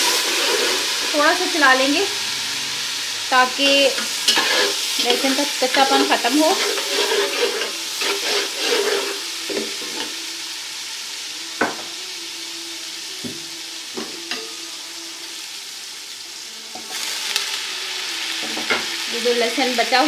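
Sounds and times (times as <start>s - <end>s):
onions sizzling in ghee: 0.0s - 20.0s
spoon scraping and knocking pan: 3.9s - 10.2s, 13.2s - 14.5s.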